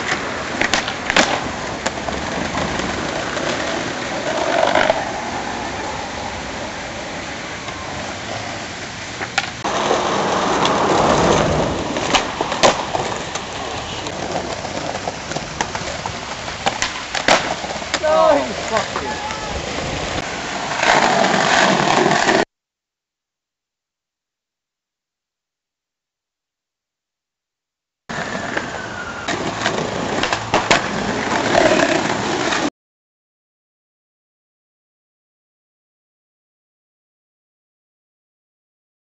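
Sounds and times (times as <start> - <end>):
skateboard clacks and landings: 0.0 - 5.1, 9.2 - 19.4, 28.1 - 32.7
skateboard wheels rolling on pavement: 0.0 - 22.5, 28.1 - 32.7.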